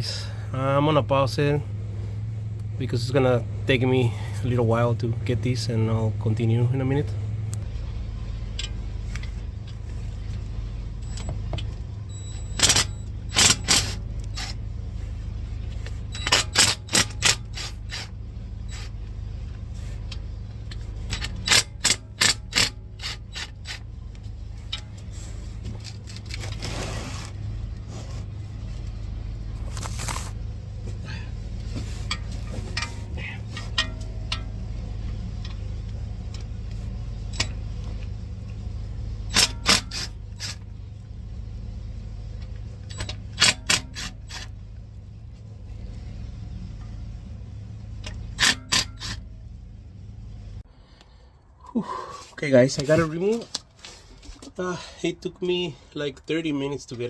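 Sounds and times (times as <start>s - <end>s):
steady low hum: 0.0s - 57.0s
metallic clicking of hand tools: 12.6s - 14.6s, 16.2s - 18.1s, 20.1s - 23.9s, 39.3s - 40.6s, 42.9s - 44.6s, 48.0s - 49.2s.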